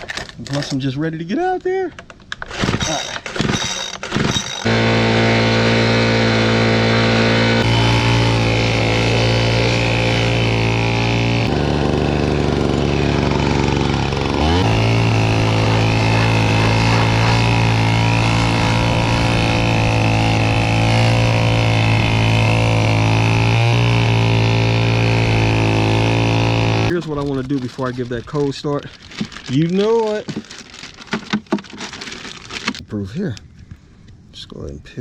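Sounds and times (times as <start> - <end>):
leaf blower running: 2.5 - 27.0.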